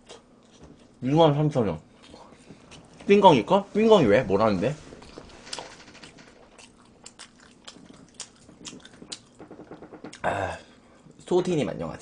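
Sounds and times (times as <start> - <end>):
person chewing: 0.0 - 1.0, 5.0 - 10.3.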